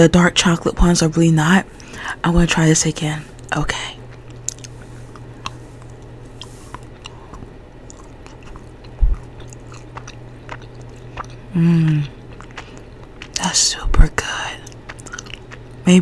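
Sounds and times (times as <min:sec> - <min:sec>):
low microphone hum: 0:00.0 - 0:16.0
biting and chewing chocolate: 0:03.4 - 0:16.0
person humming mm: 0:11.5 - 0:12.2.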